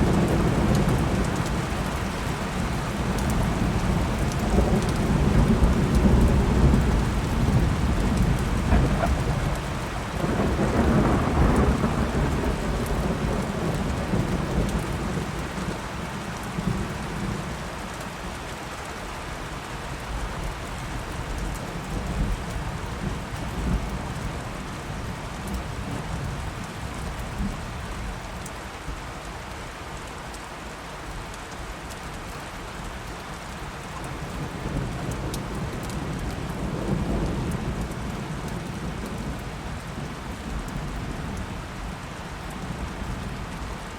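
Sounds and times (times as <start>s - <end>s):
rolling thunder: 0.0s - 15.8s
steady rain: 0.0s - 43.9s.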